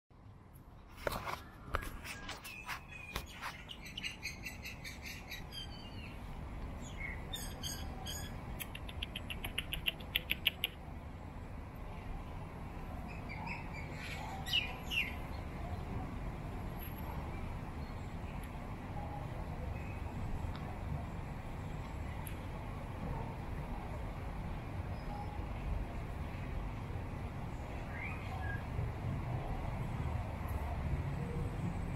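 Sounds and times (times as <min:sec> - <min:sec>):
small birds chirping: 0:01.4 - 0:10.8.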